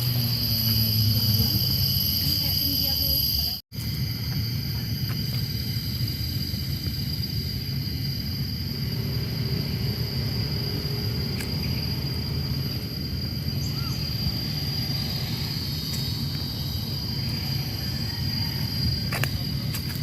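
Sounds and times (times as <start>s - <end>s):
steady low rumble: 0.0s - 20.0s
high-pitched drone: 4.3s - 19.9s.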